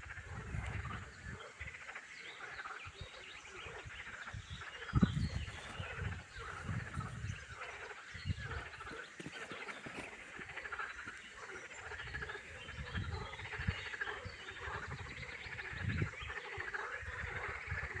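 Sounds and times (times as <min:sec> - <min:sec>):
frogs calling: 0:00.0 - 0:18.0
low rumbles on microphone: 0:04.4 - 0:09.7, 0:11.8 - 0:16.3.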